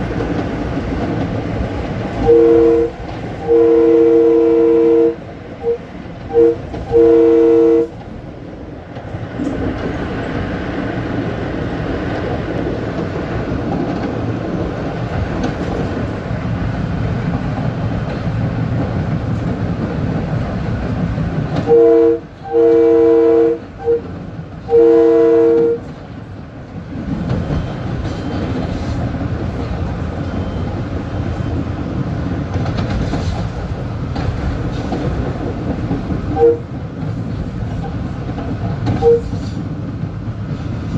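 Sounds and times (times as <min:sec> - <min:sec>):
train rumble and wheel clatter: 0:00.0 - 0:40.9
two-note train horn blasts: 0:02.2 - 0:08.0, 0:21.6 - 0:25.9, 0:36.3 - 0:36.7, 0:39.0 - 0:39.4.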